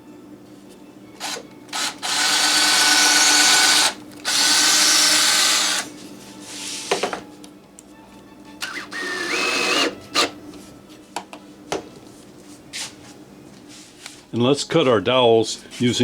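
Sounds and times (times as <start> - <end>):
power drill running: 1.2 - 5.9, 8.6 - 10.4.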